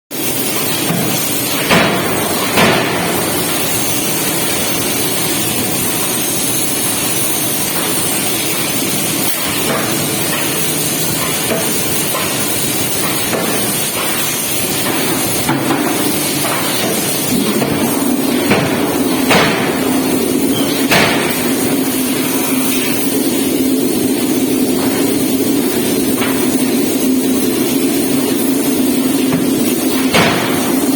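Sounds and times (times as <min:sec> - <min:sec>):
steady low hum: 0:00.4 - 0:30.9
sharp metallic knocks: 0:00.6 - 0:04.6, 0:07.7 - 0:23.6, 0:29.1 - 0:30.9
forging machine din: 0:07.7 - 0:30.9.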